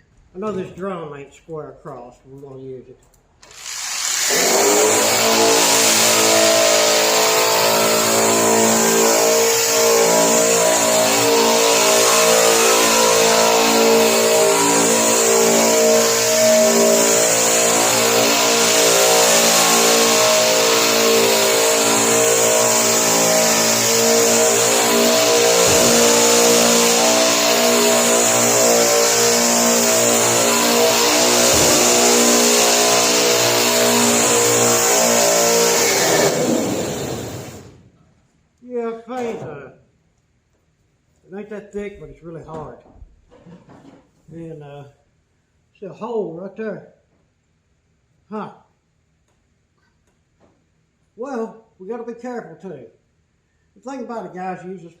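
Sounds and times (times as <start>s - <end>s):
drum sander on metal: 3.5s - 37.7s.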